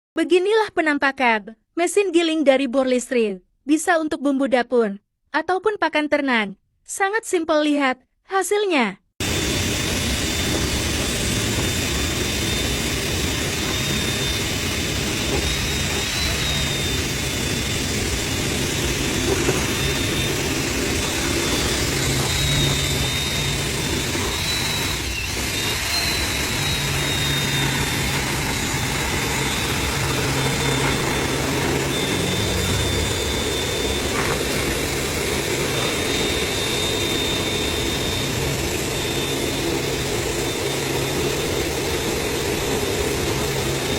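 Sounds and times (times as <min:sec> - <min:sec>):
coarse grinding noise: 0:09.2 - 0:41.7
drill motor whine: 0:09.2 - 0:43.9.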